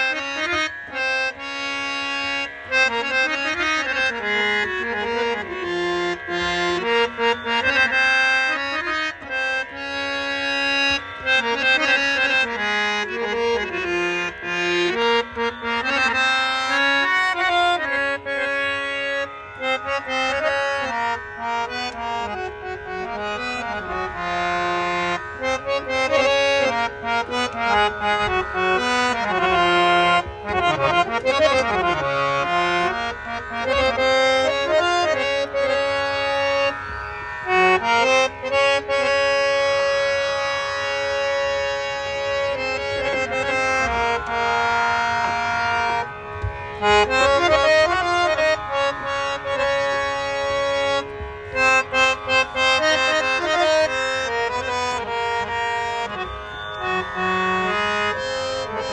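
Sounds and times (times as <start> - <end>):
harmonium melody over drone: 0.0 - 58.9.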